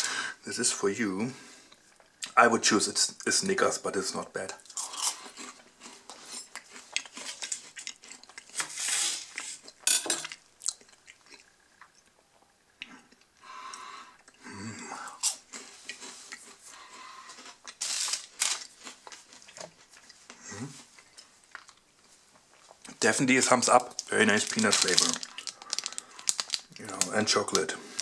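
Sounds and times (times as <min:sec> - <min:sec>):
crunchy wafer bar being chewed: 0:04.6 - 0:08.7, 0:15.1 - 0:23.0, 0:23.9 - 0:28.0
foil wrapper crinkling: 0:17.8 - 0:19.5, 0:23.4 - 0:28.0.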